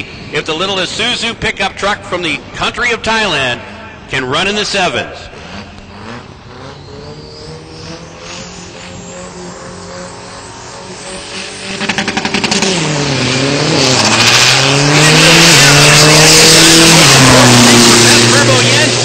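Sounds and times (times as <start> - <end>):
turbo engine revving: 5.2 - 19.0.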